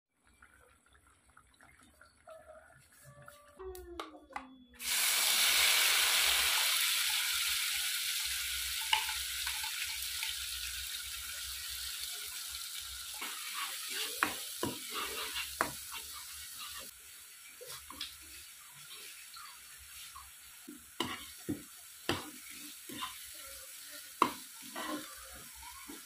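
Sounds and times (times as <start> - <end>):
paste sizzling in hot oil: 4.8 - 26.0
spatula scraping a pan: 13.1 - 16.9, 17.6 - 26.0.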